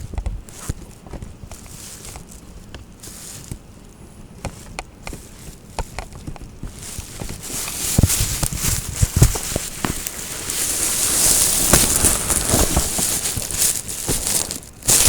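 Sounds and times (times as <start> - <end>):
raindrops tapping hard surface: 7.2 - 15.0
heavy thuds: 9.2 - 15.0.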